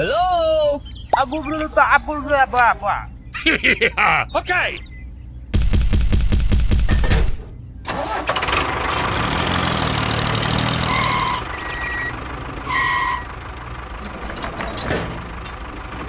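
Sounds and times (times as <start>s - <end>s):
vehicle engine running: 0.0s - 3.3s, 7.5s - 16.0s
short high beeps: 0.9s - 3.3s.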